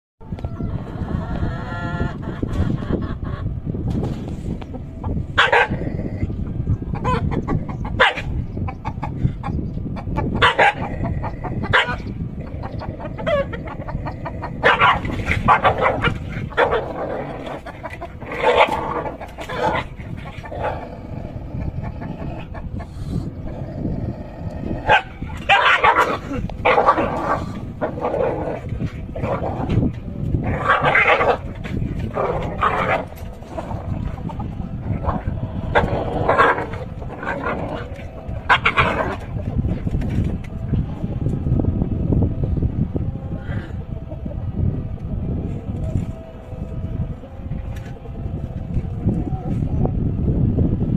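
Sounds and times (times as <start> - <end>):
rooster squawking and clucking: 0.2 - 3.6, 4.2 - 49.9
dog barking: 5.4 - 5.8, 8.0 - 8.4, 10.4 - 10.9, 11.7 - 12.1, 14.6 - 17.0, 24.9 - 27.0
scuffling rumble: 10.2 - 50.9.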